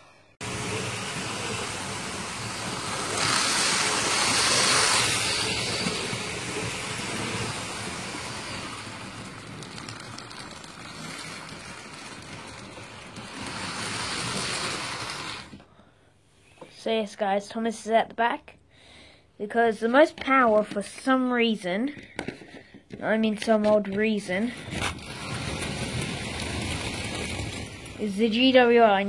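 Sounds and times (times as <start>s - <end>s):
toy train motors whirring: 0.4s - 15.6s, 24.1s - 28.8s.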